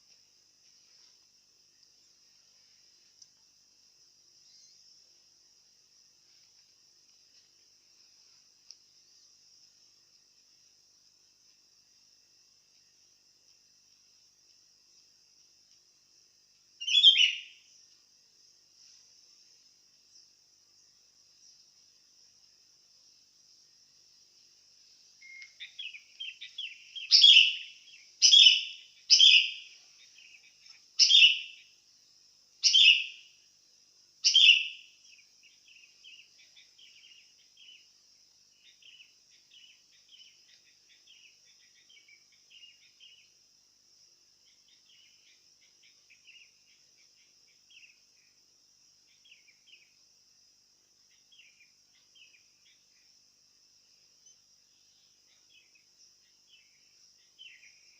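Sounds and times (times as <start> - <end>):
steady high hiss: 0.0 - 57.9
loud sharp bird calls: 16.8 - 17.5, 25.2 - 31.6, 32.6 - 33.2, 34.3 - 34.8
soft quick bird chirping: 25.2 - 31.4.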